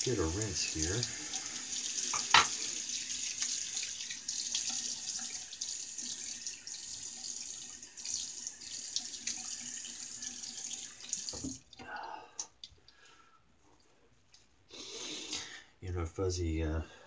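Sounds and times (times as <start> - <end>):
water running from a tap into a sink: 0.0 - 11.8.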